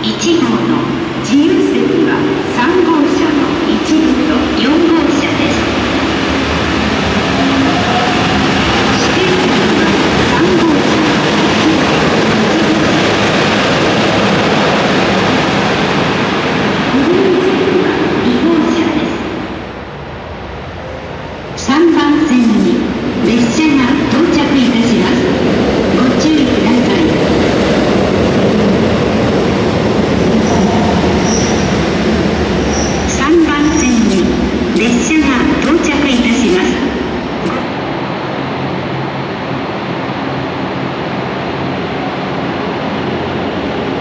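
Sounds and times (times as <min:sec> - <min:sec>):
railcar rumbling: 0:00.0 - 0:44.0
diesel railcar engine running: 0:03.7 - 0:18.3.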